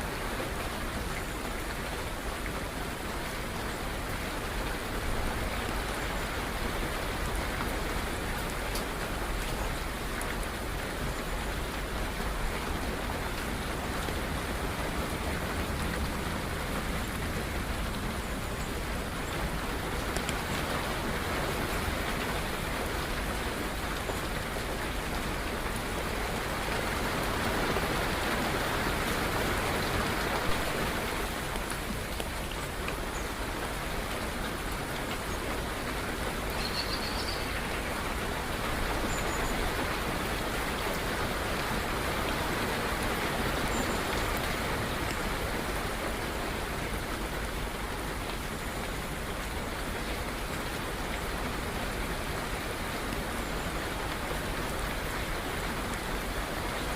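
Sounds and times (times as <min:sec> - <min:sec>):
steady rain: 0:00.0 - 0:56.9
faint bird chirps: 0:36.5 - 0:37.6.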